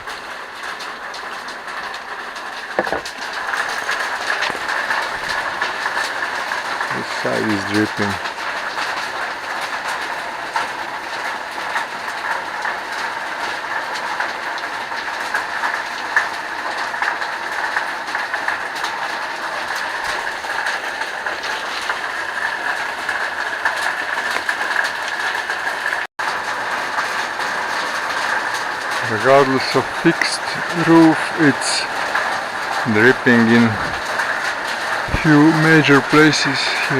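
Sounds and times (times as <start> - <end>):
water splashes and drips: 0.0 - 36.9
waterfall rushing: 2.7 - 8.2, 28.0 - 36.9.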